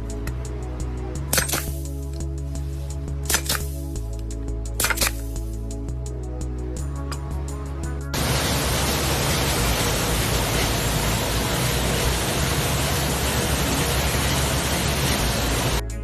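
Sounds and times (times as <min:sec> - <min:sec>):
steady hiss: 0:08.2 - 0:15.8.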